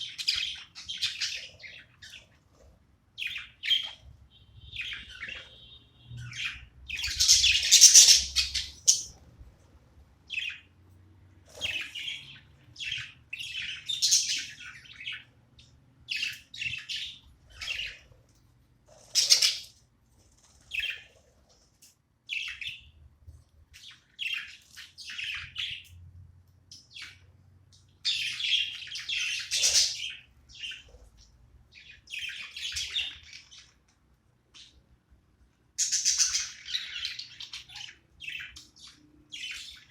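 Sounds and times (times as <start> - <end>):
budgerigars chirping: 0.0 - 2.3, 3.2 - 9.2, 10.3 - 10.7, 11.5 - 18.0, 19.0 - 19.7, 20.7 - 21.2, 23.8 - 25.9, 28.0 - 31.0, 31.8 - 33.8, 35.8 - 39.9.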